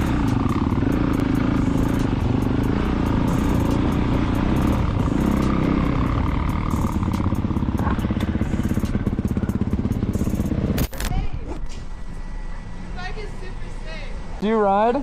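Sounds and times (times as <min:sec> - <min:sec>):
motorcycle engine running: 0:00.0 - 0:11.1.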